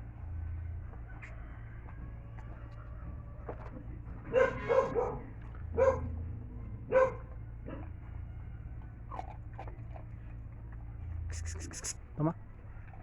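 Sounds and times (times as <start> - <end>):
dog barking excitedly: 4.3 - 6.1, 6.9 - 7.8.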